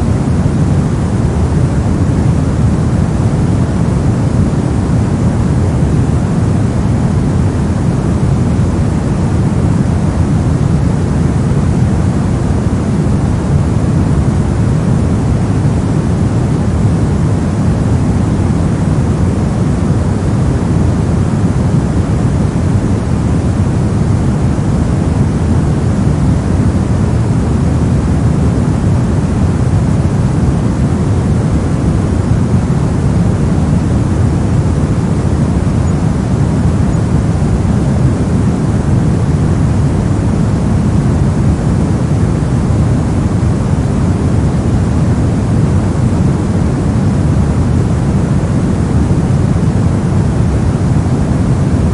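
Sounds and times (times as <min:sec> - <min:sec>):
deep white noise hiss: 0:00.0 - 0:51.9.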